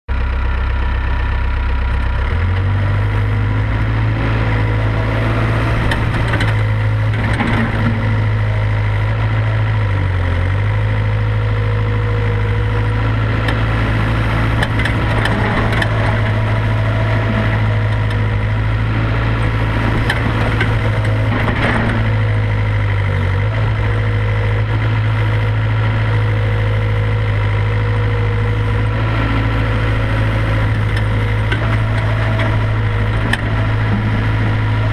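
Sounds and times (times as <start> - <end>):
excavator diesel engine running: 0.1 - 34.9
knocks and scrapes of digging: 5.2 - 9.0, 13.4 - 22.6, 30.2 - 34.9.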